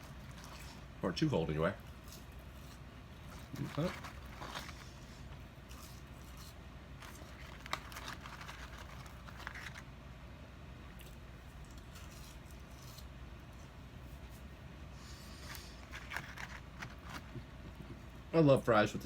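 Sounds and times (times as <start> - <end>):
person chewing fries: 0.0 - 1.0, 1.8 - 9.9, 10.9 - 14.5
paper packaging crinkling: 1.9 - 9.9, 15.4 - 17.5.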